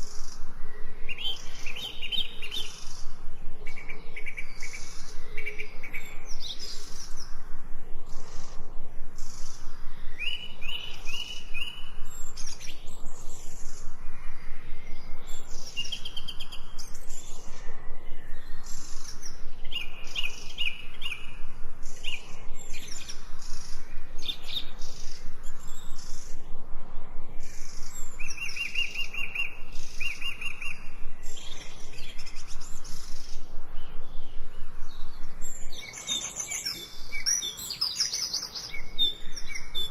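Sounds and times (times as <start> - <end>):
songbirds singing and chirping: 0.0 - 39.9
rapid bird phrase: 1.0 - 7.1.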